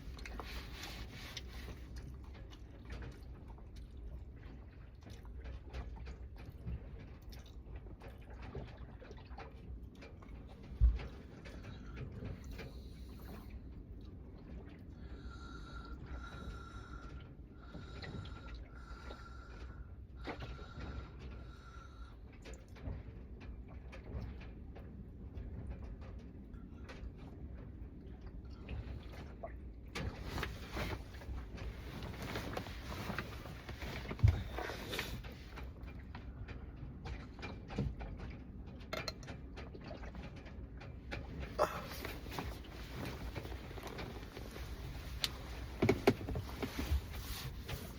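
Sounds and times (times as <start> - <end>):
breathing through the nose: 15.0 - 22.2
food and tableware clicks and rustles: 38.8 - 40.4.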